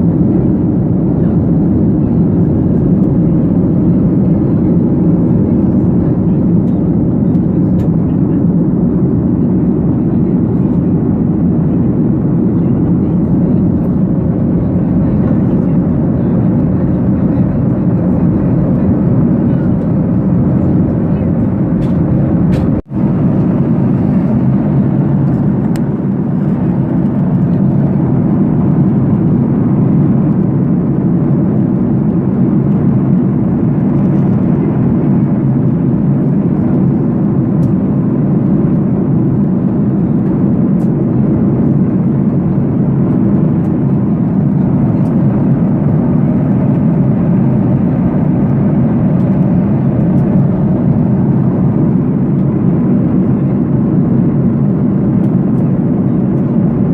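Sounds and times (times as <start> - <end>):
airliner cabin engine and airflow noise: 0.0 - 56.9.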